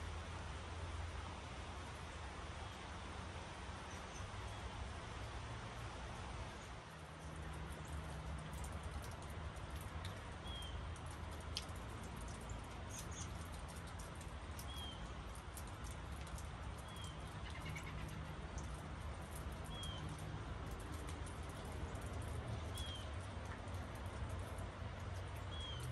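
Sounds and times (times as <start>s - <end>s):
steady rain falling: 0.0s - 25.9s
drips ticking: 5.3s - 25.9s.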